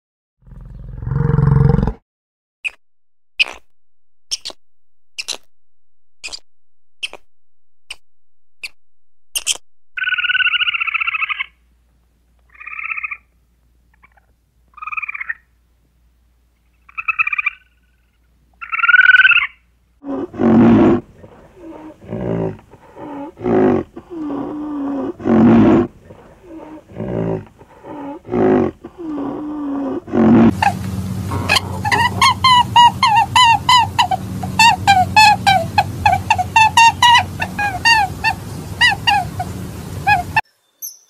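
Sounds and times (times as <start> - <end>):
squirrel chattering calls: 5.2 - 5.4, 9.4 - 11.5, 30.5 - 40.4
rhinoceros grunting: 20.0 - 33.2.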